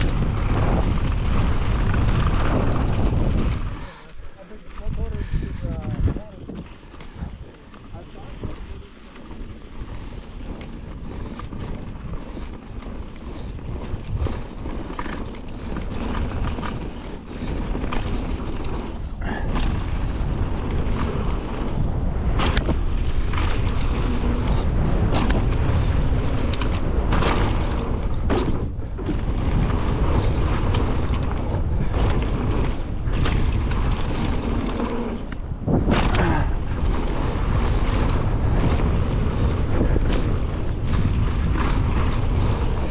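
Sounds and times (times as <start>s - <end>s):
bike knocks and rattles: 0.0s - 42.9s
tyres rumbling on dirt: 0.0s - 42.9s
wind buffeting microphone: 0.0s - 42.9s.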